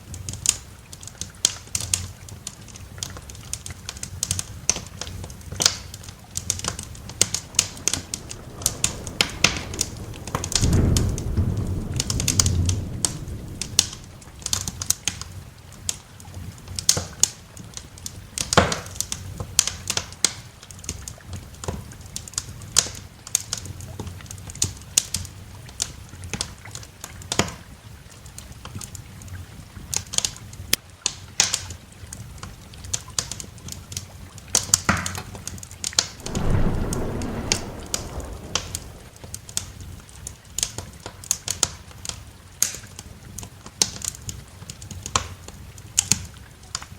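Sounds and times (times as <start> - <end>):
light steady rain: 0.0 - 46.9
wood fire crackling and popping: 4.2 - 15.8, 36.2 - 39.3
thunder rolling: 5.4 - 15.2, 36.2 - 39.6.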